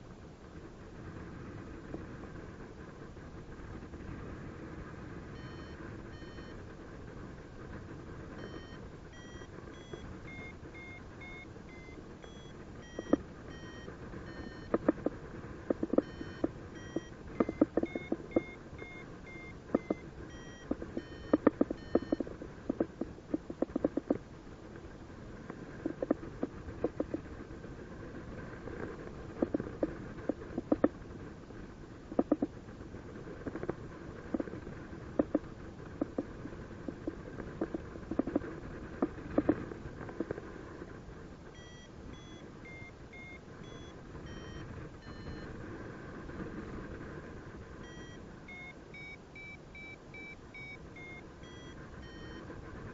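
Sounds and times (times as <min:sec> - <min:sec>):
variometer beeps: 0:05.3 - 0:06.6, 0:08.4 - 0:24.2, 0:25.8 - 0:27.3, 0:29.4 - 0:30.9, 0:35.2 - 0:36.3, 0:36.9 - 0:38.4, 0:41.5 - 0:45.5, 0:47.8 - 0:52.5.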